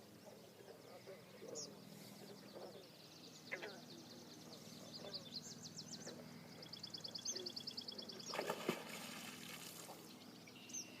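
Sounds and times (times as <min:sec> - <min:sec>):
beaver tail slapping water: 0:08.3 - 0:10.0.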